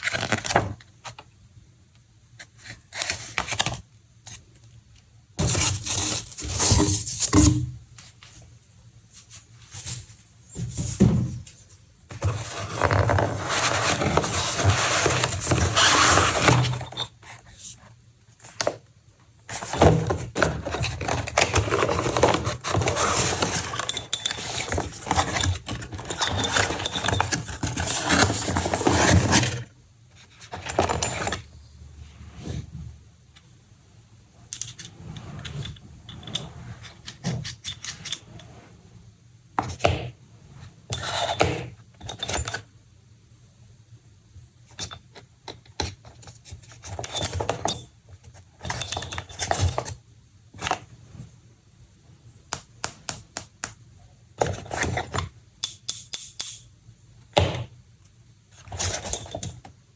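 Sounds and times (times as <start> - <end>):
packaging rustling and scraping: 0.0 - 1.2, 5.4 - 7.4, 9.1 - 18.8, 19.5 - 32.8.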